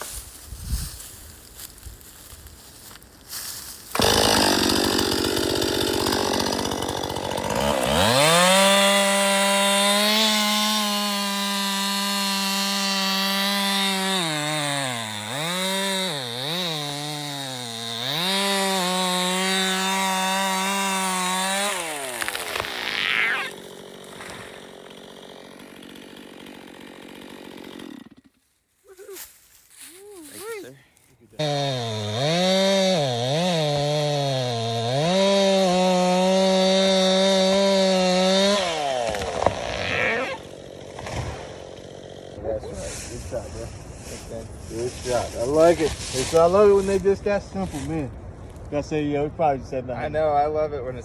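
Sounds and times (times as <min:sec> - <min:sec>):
chainsaw cutting wood: 0:03.9 - 0:28.4, 0:31.4 - 0:42.6.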